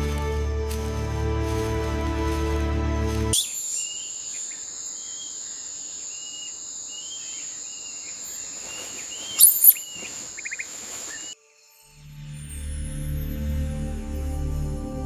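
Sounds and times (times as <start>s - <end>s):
bird chirps: 3.3s - 11.4s
loud sharp bird chirps: 3.3s - 11.4s
insect trill: 3.3s - 12.1s.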